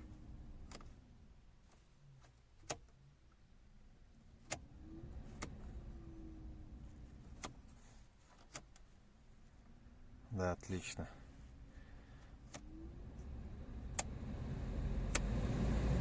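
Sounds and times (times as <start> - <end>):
blower motor humming: 12.7 - 16.0.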